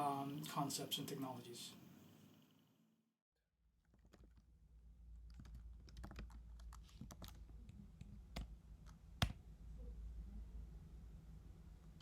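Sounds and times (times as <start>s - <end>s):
low steady hum: 4.8s - 12.0s
keyboard typing clicks: 5.3s - 7.4s.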